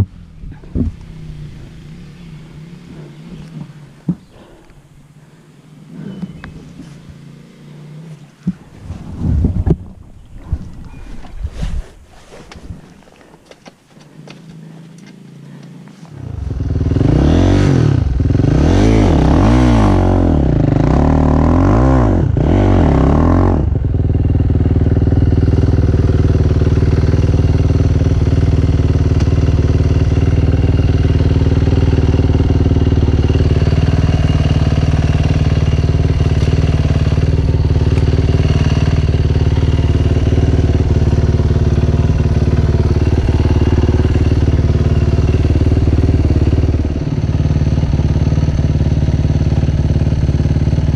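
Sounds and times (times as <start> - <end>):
dirt bike engine revving: 0.0 - 4.6, 16.1 - 50.9.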